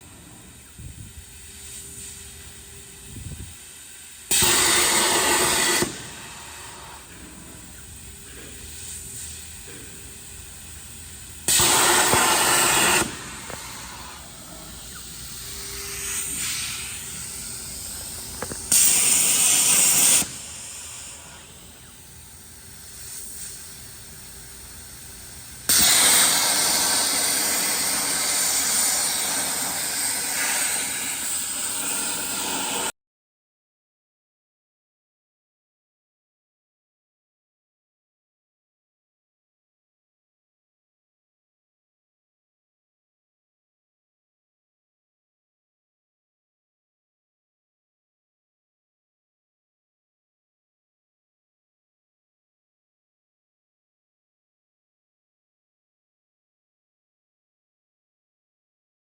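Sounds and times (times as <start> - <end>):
machine background hum: 0.0 - 32.9
plasma arc cutting bursts: 0.0 - 32.9.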